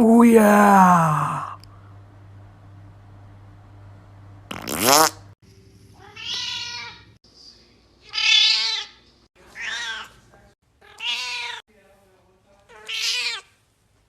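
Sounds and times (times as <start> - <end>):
cat meowing: 6.0 - 7.1, 8.1 - 9.0, 9.6 - 10.1, 10.8 - 11.6, 12.7 - 13.5.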